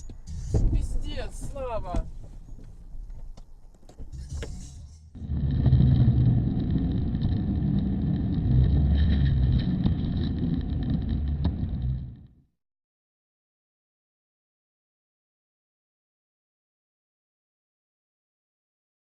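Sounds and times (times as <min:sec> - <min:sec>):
car engine and road noise: 0:00.0 - 0:12.3.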